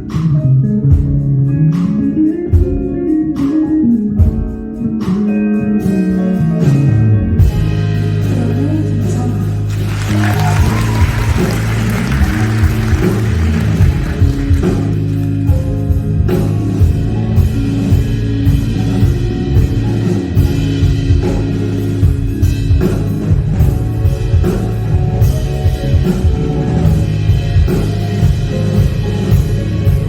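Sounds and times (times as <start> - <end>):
drum kit beat: 0.0 - 30.0
electric guitar: 0.0 - 30.0
live band playing: 0.0 - 30.0
sustained bass notes: 6.2 - 30.0.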